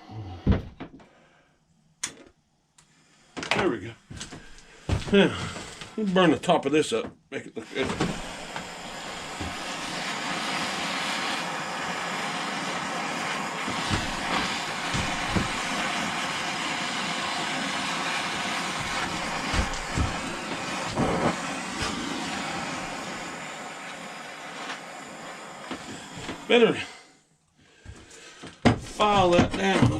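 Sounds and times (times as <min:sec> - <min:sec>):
blowtorch flame hissing: 0:04.1 - 0:06.1, 0:07.6 - 0:27.2, 0:27.8 - 0:29.9.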